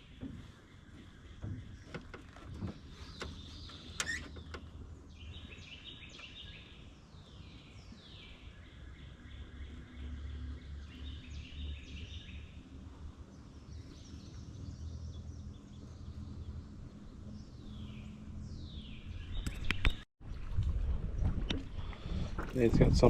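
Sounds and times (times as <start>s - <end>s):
songbirds singing: 0.0s - 20.1s.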